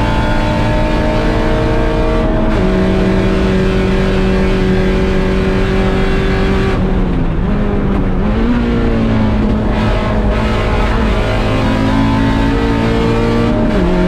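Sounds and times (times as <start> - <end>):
car engine at high revs: 0.0 - 14.0.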